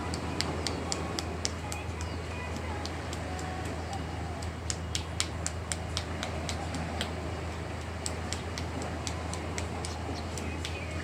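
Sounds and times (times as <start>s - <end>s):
boat engine droning: 0.0s - 11.0s
sharp ticks: 7.8s - 11.0s.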